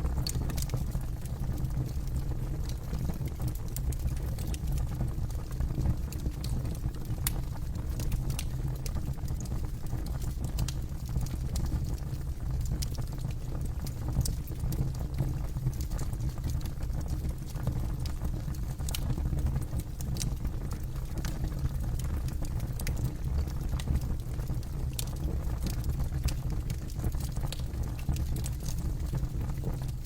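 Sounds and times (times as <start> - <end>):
campfire crackling and popping: 12.6 - 30.0.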